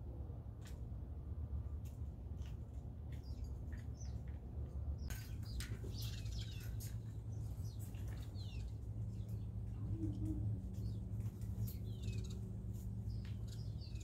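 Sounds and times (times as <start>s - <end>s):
birds chirping: 3.1s - 14.0s.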